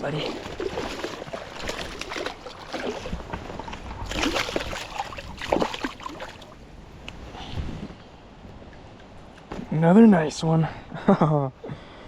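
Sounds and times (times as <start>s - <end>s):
creek water splashing: 0.0s - 6.8s.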